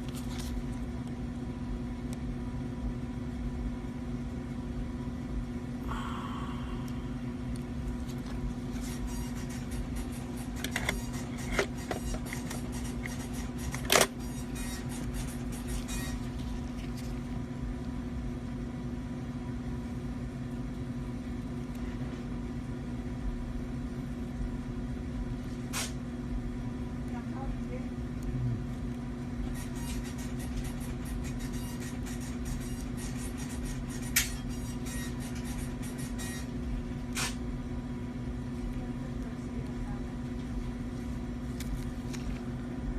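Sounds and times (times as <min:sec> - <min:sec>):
steady low hum: 0:00.0 - 0:42.9
low rumble: 0:05.8 - 0:08.7.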